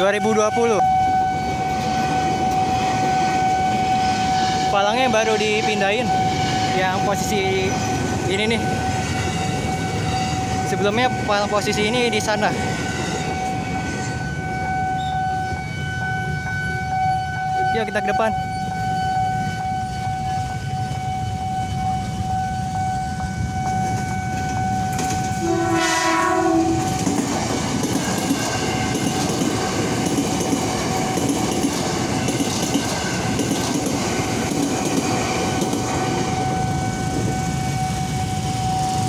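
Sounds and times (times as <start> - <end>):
train horn blast: 0.0 - 11.5, 12.1 - 27.1
level crossing warning tone: 0.0 - 39.0
train rumble and wheel clatter: 0.0 - 39.0.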